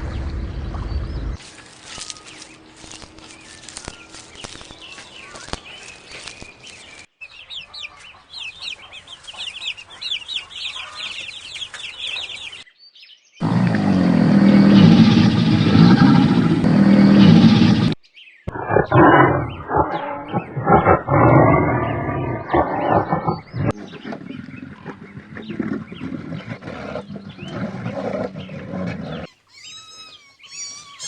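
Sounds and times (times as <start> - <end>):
deep animal roar: 13.4 - 29.3.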